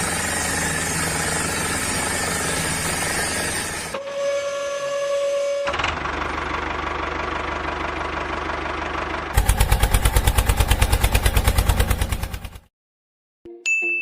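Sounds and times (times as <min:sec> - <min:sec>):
engine chugging: 0:04.7 - 0:12.7
short chime: 0:13.5 - 0:14.0.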